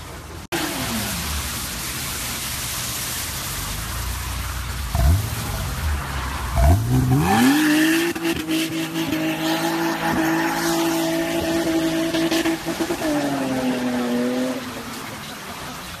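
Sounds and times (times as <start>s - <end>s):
tyres spinning on wet asphalt: 0.0s - 16.0s
car engine revving hard: 4.9s - 14.7s.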